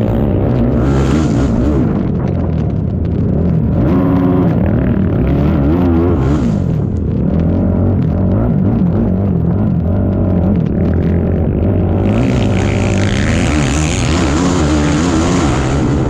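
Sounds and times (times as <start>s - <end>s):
quad bike engine revving: 0.0s - 16.0s
steady low rumble: 0.0s - 16.0s.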